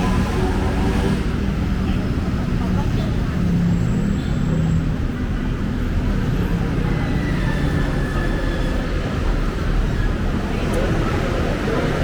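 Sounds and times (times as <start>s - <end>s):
heavy vehicles rumbling past: 0.0s - 12.0s.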